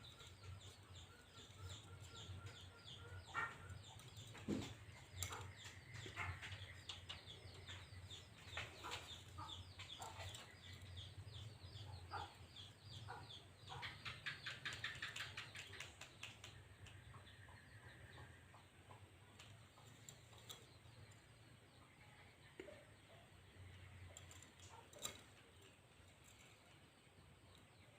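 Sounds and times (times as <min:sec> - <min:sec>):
birds chirping: 0:00.0 - 0:27.9.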